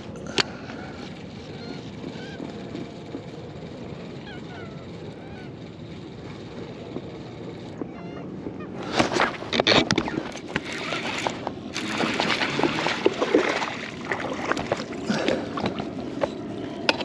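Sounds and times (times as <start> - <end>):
water splashing beside kayak: 10.1 - 17.0.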